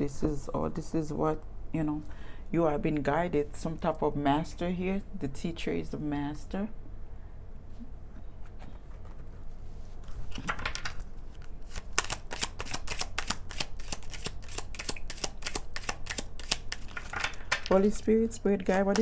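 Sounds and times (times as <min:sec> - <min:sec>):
cards being shuffled: 0:08.4 - 0:19.0.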